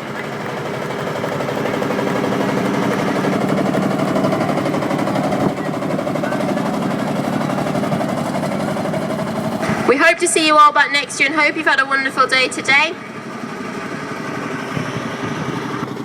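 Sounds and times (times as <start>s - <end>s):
crowd applauding: 0.0s - 10.0s
tractor engines running: 0.0s - 16.0s.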